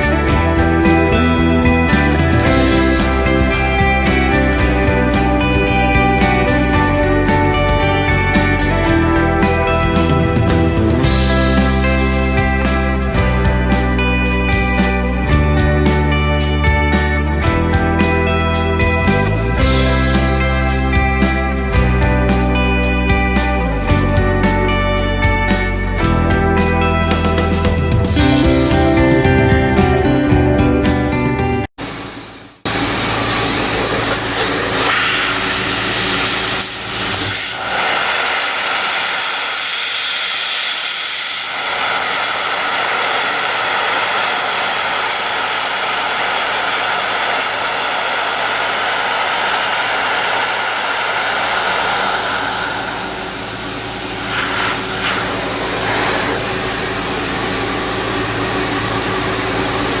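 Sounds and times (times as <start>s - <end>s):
abrasive blast nozzle hissing: 32.8s - 58.5s.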